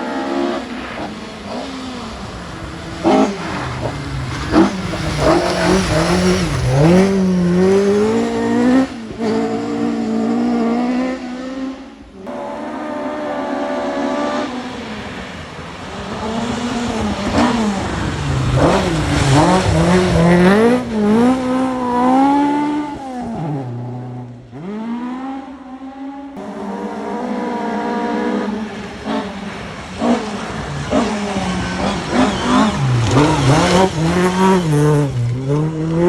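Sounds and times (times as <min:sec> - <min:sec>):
rally car engines at full throttle: 0:00.0 - 0:36.0.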